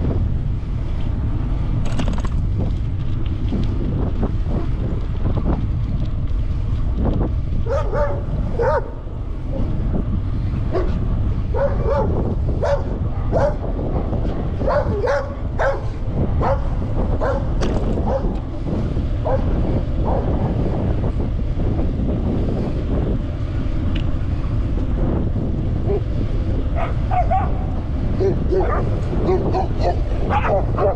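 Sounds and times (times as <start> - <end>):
wind rumble on microphone: 0.0 - 30.9
dog barking: 7.7 - 9.0, 10.7 - 13.6, 14.6 - 18.3, 19.2 - 19.5, 26.8 - 27.6, 28.2 - 30.9.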